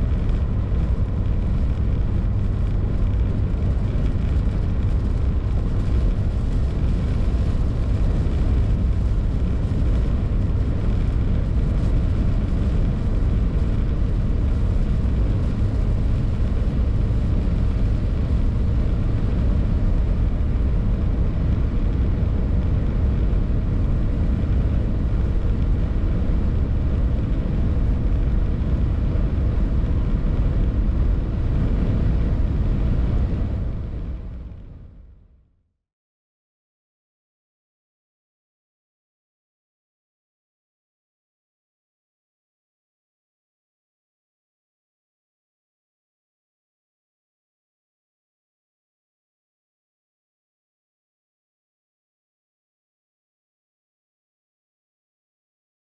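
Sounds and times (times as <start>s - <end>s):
wind and tyre noise: 0.0s - 35.6s.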